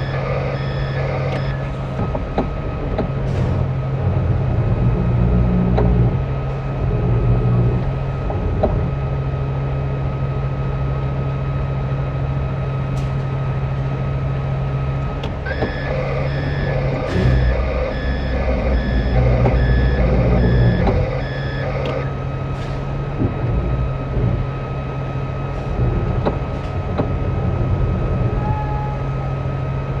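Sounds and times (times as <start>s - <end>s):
reversing alarm beeping: 0.0s - 1.9s, 14.8s - 22.5s
heavy truck engine running: 0.0s - 30.0s.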